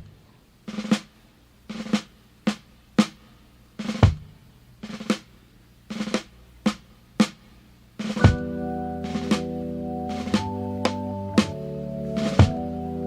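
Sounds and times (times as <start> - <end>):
snare drum rolls and hits: 3.8 - 5.3, 8.0 - 8.5, 10.1 - 11.6, 12.2 - 12.6
bass drum stroke: 8.2 - 9.5, 12.2 - 12.7.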